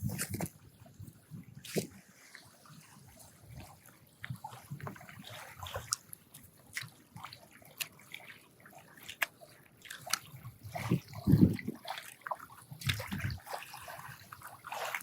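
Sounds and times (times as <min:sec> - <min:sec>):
water sloshing and trickling: 0:00.0 - 0:15.0
water splash: 0:09.0 - 0:15.0.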